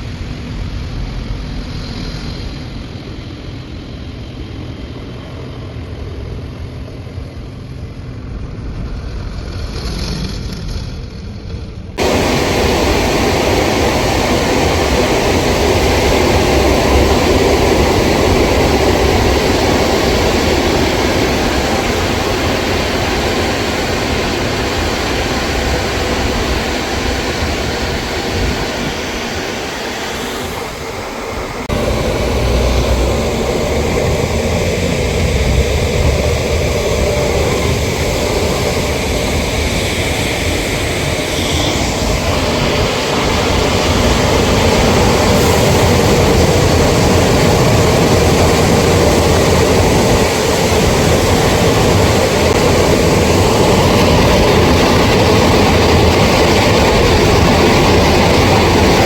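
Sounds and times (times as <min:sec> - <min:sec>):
jet washer spraying water: 0:12.0 - 0:59.0
machine low rumble: 0:12.0 - 0:59.0.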